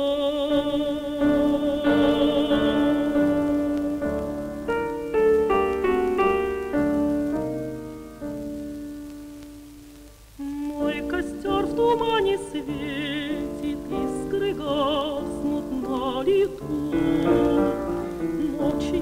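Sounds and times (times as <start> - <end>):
woman singing with vibrato: 0.0 - 4.4, 10.4 - 19.0
piano chords and notes: 0.0 - 19.0.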